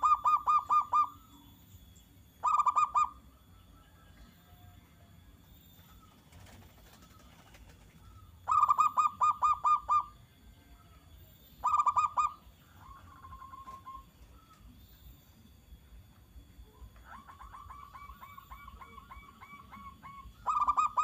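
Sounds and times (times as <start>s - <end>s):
dove cooing: 0.0s - 1.3s, 2.4s - 3.2s, 6.0s - 10.2s, 11.6s - 14.5s, 16.8s - 21.0s.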